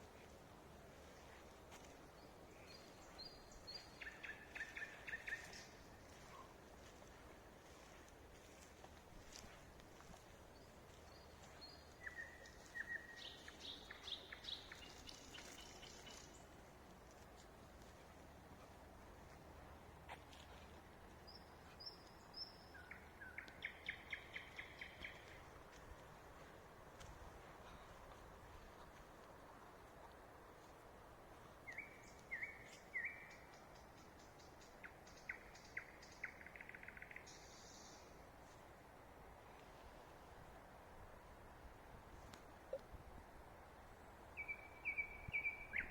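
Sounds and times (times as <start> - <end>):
faint background hiss: 0.0 - 45.9
songbird singing: 1.0 - 26.5, 31.4 - 38.6, 43.9 - 45.9.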